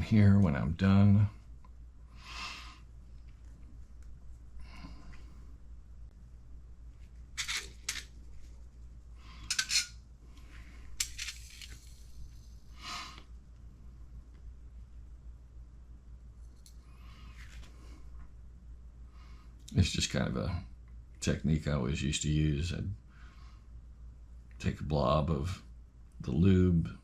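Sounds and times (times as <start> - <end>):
small metal balls clinking: 11.0 - 12.8.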